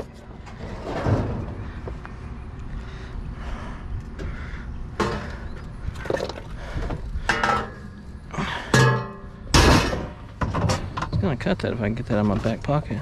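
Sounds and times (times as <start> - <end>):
steady low rumble: 0.0 - 13.0
scrap metal knocks and clanks: 8.7 - 11.4.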